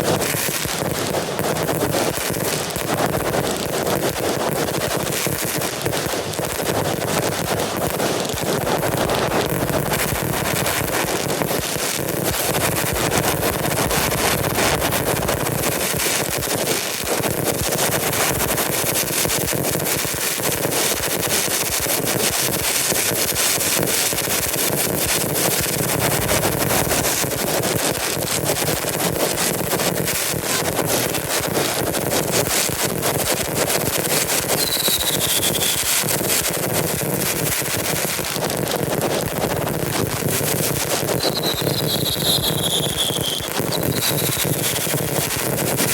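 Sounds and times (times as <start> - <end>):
fireworks crackling bangs: 0.0 - 45.9
falling firework whistle: 8.8 - 16.2, 24.6 - 27.9, 34.3 - 36.4, 40.3 - 45.9.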